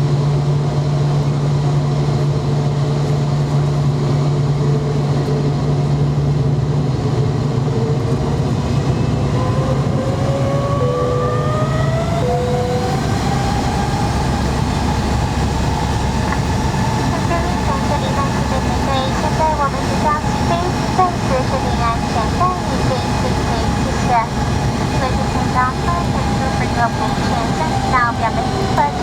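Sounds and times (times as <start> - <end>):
airliner engines humming: 0.0 - 29.0
jet engine whine rising: 6.2 - 29.0.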